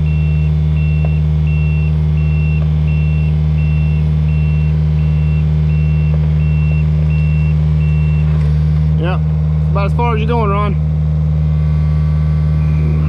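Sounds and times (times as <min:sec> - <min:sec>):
travel alarm beeping: 0:00.0 - 0:08.3
excavator diesel engine running: 0:00.0 - 0:13.0.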